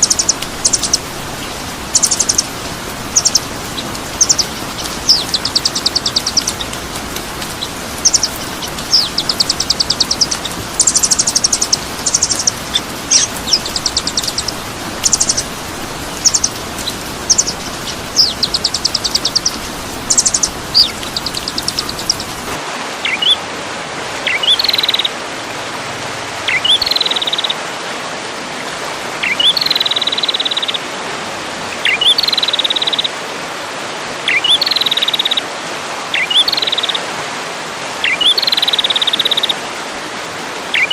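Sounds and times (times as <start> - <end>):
steady hiss: 0.0 - 22.6
bird trills and chirps: 0.0 - 23.4, 36.2 - 37.0.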